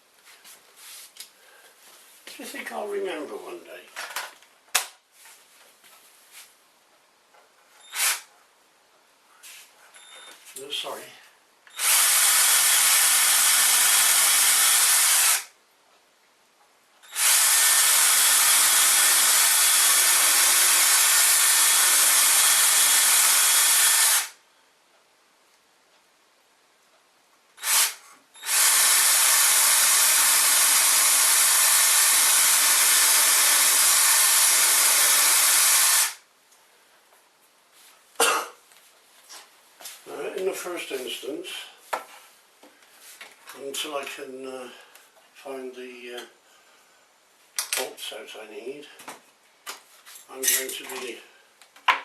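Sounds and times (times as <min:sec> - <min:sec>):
cordless power drill running: 0:07.9 - 0:08.3, 0:11.7 - 0:15.5, 0:17.0 - 0:24.4, 0:27.6 - 0:36.2.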